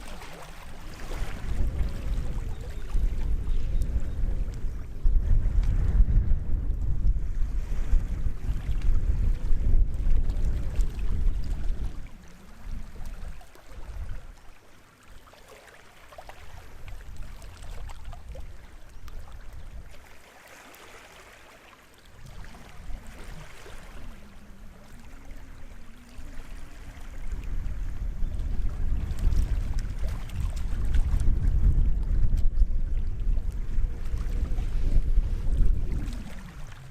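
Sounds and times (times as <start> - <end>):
small waves lapping on shore: 0.0 - 6.1, 6.8 - 36.9
wind rumble on microphone: 0.0 - 14.5, 16.3 - 20.2, 22.0 - 36.9.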